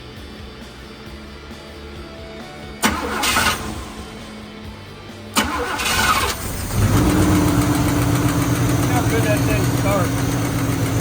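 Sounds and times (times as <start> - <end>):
engine running steadily: 0.1 - 11.0
engine starter cranking: 2.8 - 4.1, 5.4 - 11.0.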